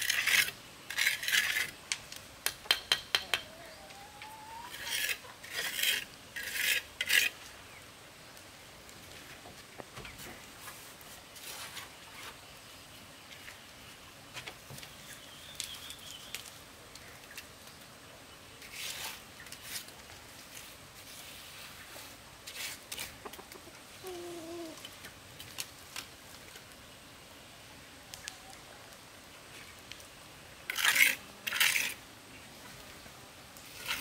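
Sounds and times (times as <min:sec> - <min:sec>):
scrapes and taps of hand work: 0:02.4 - 0:03.5.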